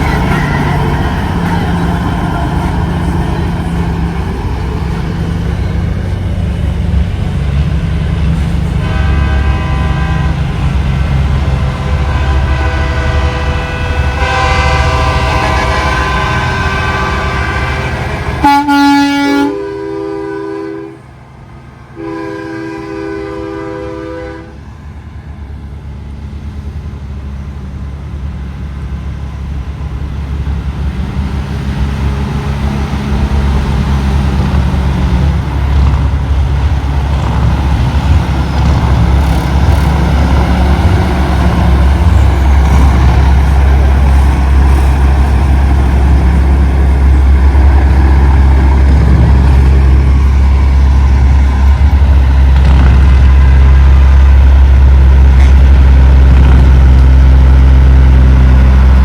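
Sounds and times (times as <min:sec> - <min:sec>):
diesel truck engines rumbling: 0:00.0 - 0:59.0
truck air horns blasting: 0:08.3 - 0:21.1, 0:22.0 - 0:24.7.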